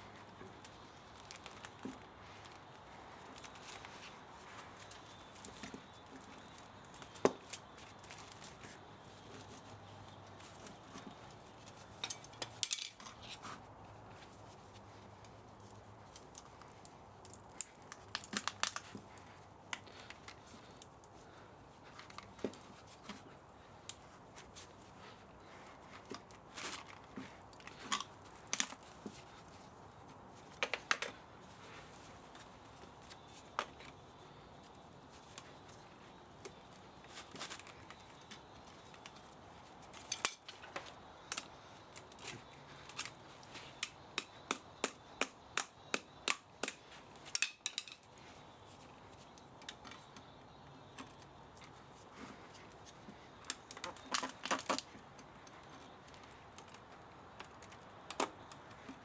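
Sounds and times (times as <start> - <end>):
hand tools snipping and clicking: 39.9 - 48.0.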